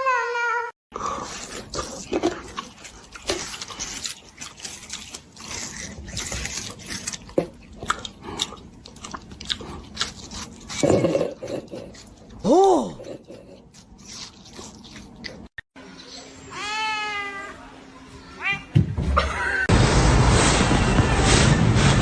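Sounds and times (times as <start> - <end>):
pet chewing crunchy food: 1.0 - 12.4, 13.0 - 15.6.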